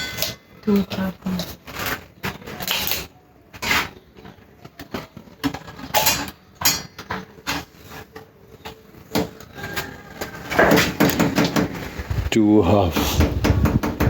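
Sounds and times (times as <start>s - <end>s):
hard objects knocking and rattling: 4.2s - 14.0s.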